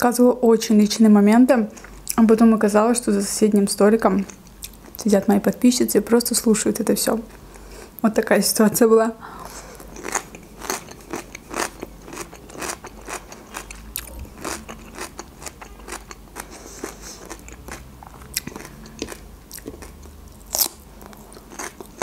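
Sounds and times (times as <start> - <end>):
chewing crunchy cucumber: 9.5 - 22.0.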